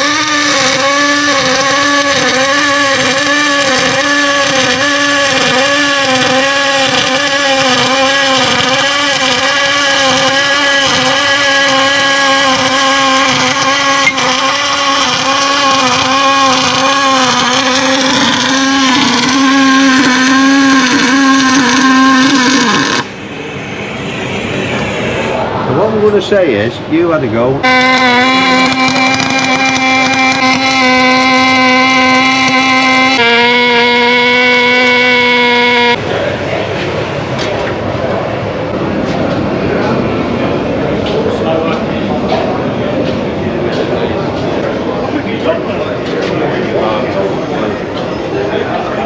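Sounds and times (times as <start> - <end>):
welding arc buzzing: 0.0 - 23.2, 27.6 - 36.0.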